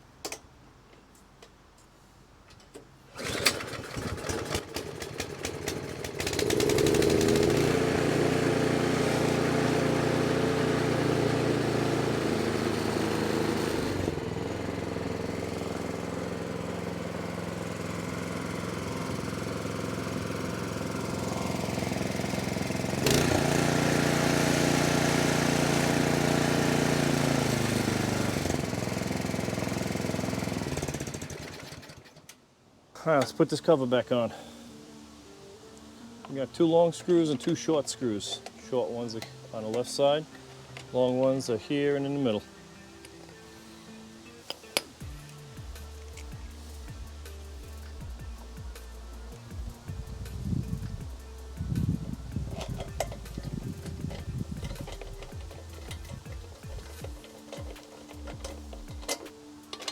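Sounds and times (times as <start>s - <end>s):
small engine running: 3.2s - 32.2s, 44.8s - 59.9s.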